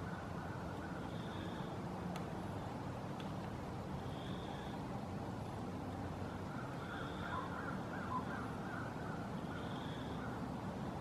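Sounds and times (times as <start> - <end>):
bird calling: 0.0 - 1.8, 6.2 - 10.6.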